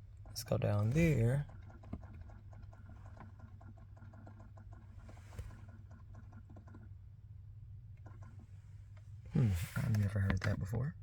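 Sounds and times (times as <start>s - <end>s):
low steady hum: 0.0s - 3.6s, 4.6s - 11.0s
rapid irregular clicking: 0.1s - 7.0s, 8.0s - 8.5s.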